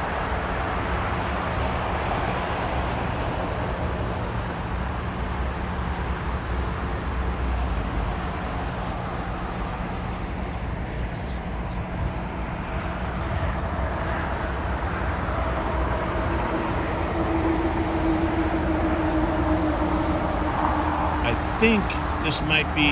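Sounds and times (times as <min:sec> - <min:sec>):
high engine whine: 0:16.0 - 0:22.9
jet engines rumbling: 0:18.9 - 0:22.9.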